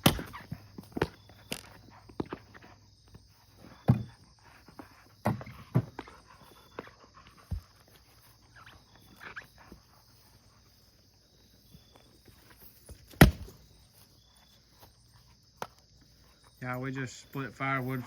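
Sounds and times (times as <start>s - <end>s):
axe striking log: 0.0s - 0.6s, 13.1s - 13.6s
crickets chirring: 0.0s - 18.0s.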